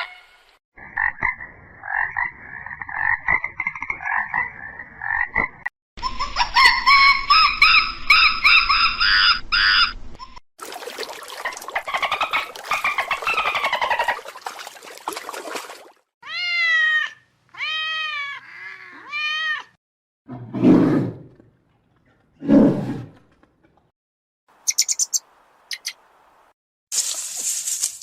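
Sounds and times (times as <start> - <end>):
cat meowing: 16.2 - 19.8.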